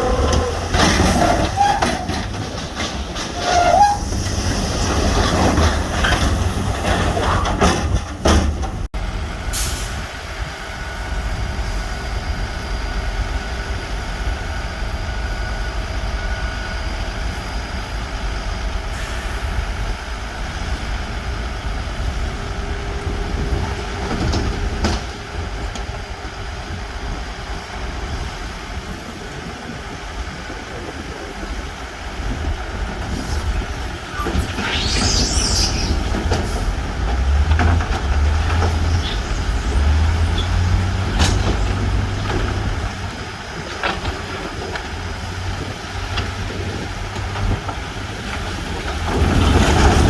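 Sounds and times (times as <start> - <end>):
heavy diesel machinery running: 0.0 - 50.0.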